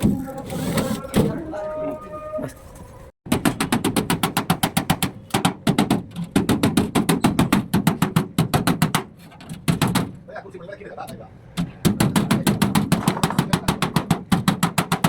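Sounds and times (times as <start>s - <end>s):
rapid sharp knocks: 3.3s - 10.2s, 11.8s - 15.0s.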